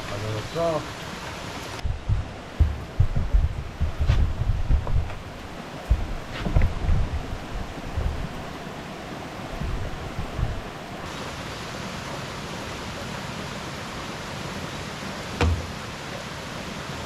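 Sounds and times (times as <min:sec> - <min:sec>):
heavy rain: 0:00.0 - 0:17.0
stream rushing: 0:00.0 - 0:17.0
wind rumbling on microphone: 0:01.7 - 0:11.1.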